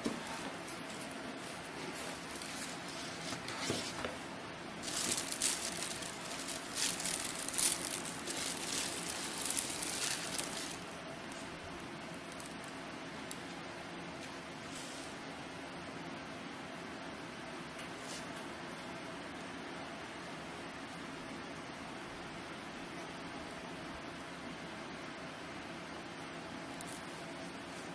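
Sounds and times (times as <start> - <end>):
low room hiss: 0.0 - 27.9
packaging rustling and crinkling: 0.7 - 4.2, 4.8 - 11.4, 12.2 - 12.8.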